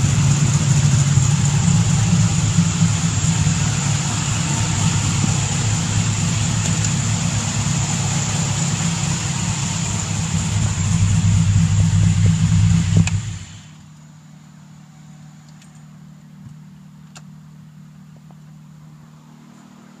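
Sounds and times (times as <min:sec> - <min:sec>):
car engine running rough: 0:00.0 - 0:13.9
click: 0:13.0 - 0:13.2, 0:15.5 - 0:15.9.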